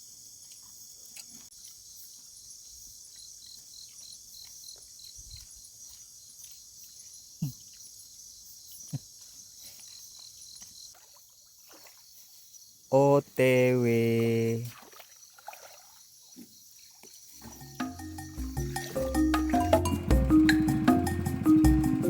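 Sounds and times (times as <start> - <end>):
crickets chirping: 0.0 - 22.0
low thumps: 17.5 - 22.0.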